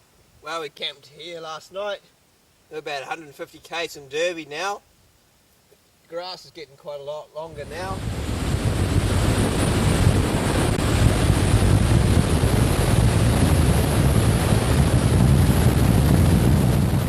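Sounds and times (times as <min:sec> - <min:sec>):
wind buffeting microphone: 0:07.5 - 0:17.0.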